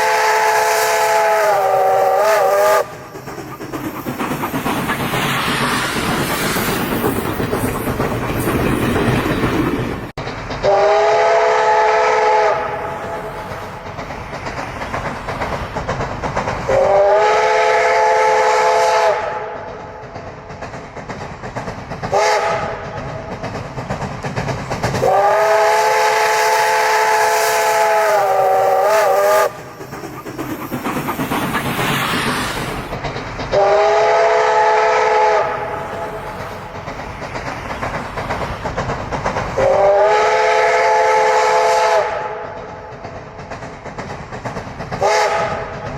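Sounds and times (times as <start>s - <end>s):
steam train chime whistle: 0.0s - 3.0s, 10.6s - 13.4s, 16.7s - 19.6s, 22.1s - 22.8s, 25.0s - 29.6s, 33.6s - 35.8s, 39.6s - 42.4s, 45.0s - 45.7s
train rumbling and hissing: 0.0s - 45.9s.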